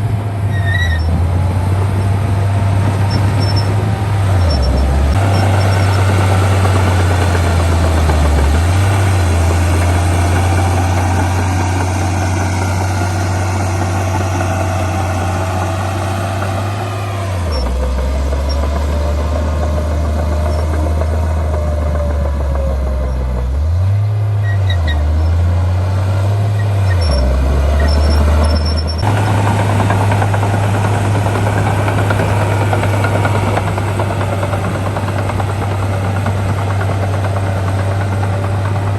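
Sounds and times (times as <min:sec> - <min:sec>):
heavy diesel engines under load: 0:00.0 - 0:38.9.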